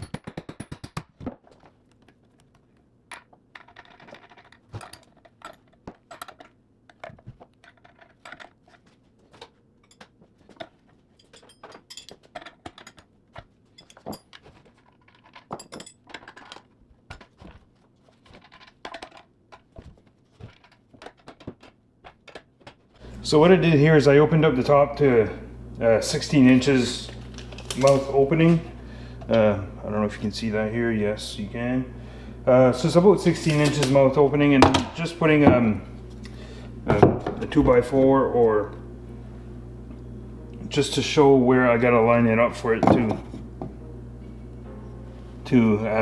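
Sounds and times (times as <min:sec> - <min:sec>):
bolts and nuts clinking: 0:03.1 - 0:16.8.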